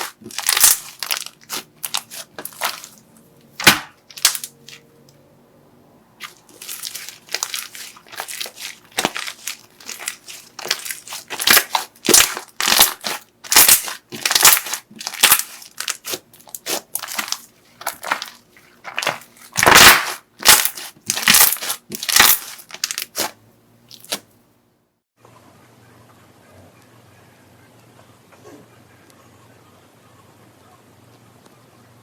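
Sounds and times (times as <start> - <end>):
slime squishing by hand: 0.0 - 4.9, 6.2 - 24.3.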